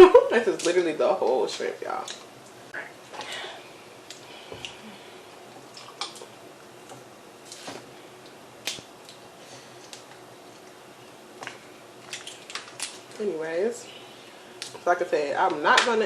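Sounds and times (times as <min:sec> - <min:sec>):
shrimp shells cracking: 0:12.0 - 0:13.1.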